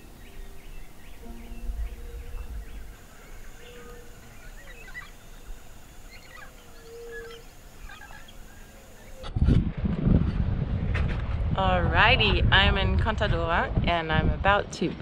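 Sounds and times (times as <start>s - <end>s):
low rumble: 0.0s - 4.6s, 9.3s - 15.0s
birds chirping and whistling: 0.0s - 9.3s.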